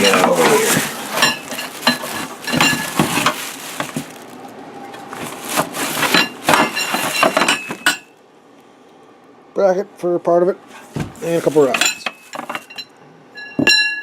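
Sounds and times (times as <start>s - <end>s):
parts knocking against cardboard: 0.0s - 4.1s, 10.9s - 12.7s.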